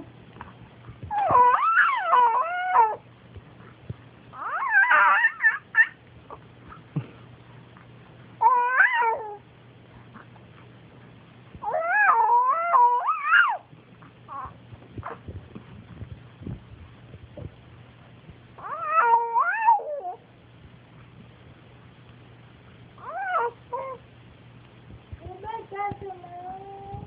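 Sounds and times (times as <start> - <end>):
pet crying loudly: 1.1 - 3.0, 4.4 - 6.0, 8.4 - 9.4, 11.6 - 13.7, 18.6 - 20.2, 23.0 - 24.0.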